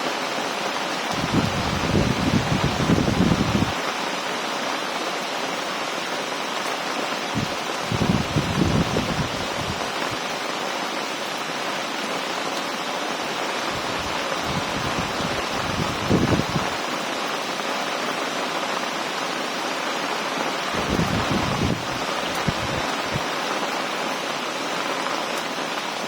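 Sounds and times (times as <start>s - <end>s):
heavy rain pouring: 0.0s - 26.0s
wind gusts buffeting microphone: 1.1s - 3.8s, 7.3s - 10.3s, 13.7s - 16.8s, 20.7s - 23.5s.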